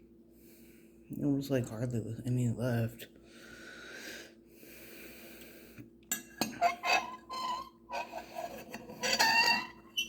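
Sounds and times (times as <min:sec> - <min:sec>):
cutlery clinking against dishes: 0:06.1 - 0:07.2
short squeaky squeals: 0:06.6 - 0:10.0.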